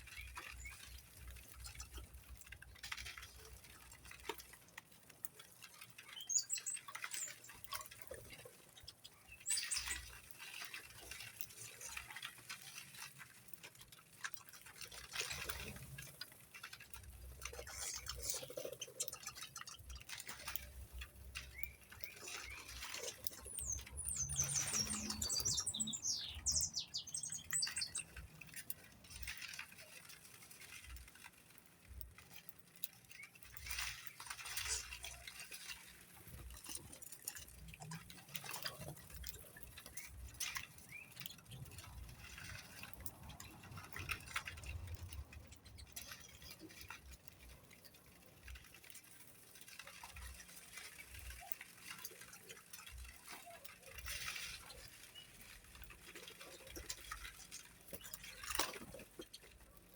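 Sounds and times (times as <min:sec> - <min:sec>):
pattering and clicking: 0:00.0 - 0:59.9
birds chirping and squawking: 0:21.5 - 0:28.2.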